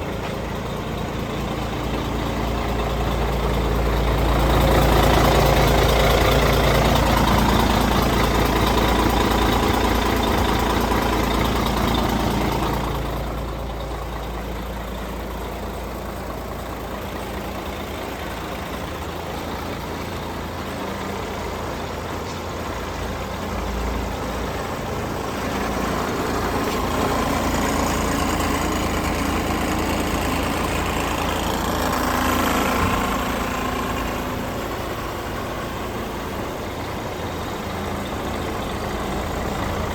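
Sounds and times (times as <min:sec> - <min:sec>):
truck diesel engine idling: 0:00.0 - 0:39.9.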